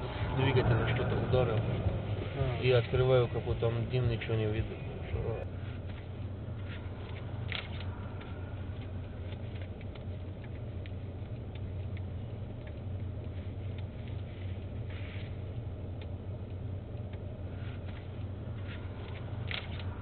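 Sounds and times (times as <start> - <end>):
vehicle engine hum: 0.0 - 20.0
light clicks and crackles: 5.4 - 20.0
rustling noise: 17.5 - 20.0.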